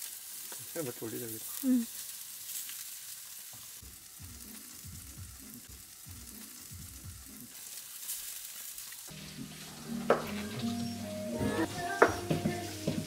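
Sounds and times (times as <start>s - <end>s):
seafood sizzling on a grill: 0.0s - 13.0s
music: 4.2s - 7.5s, 9.1s - 13.0s.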